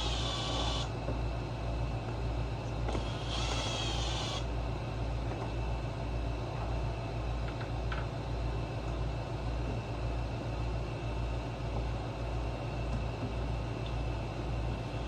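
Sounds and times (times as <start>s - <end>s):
power driver whining: 0.0s - 1.0s, 2.9s - 4.5s
steady low hum: 0.0s - 15.0s.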